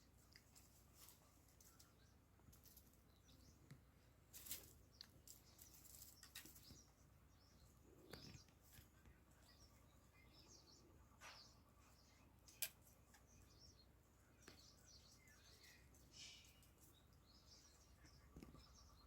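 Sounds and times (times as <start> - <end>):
faint clicks and scratches: 0.2 - 6.9, 7.9 - 9.9.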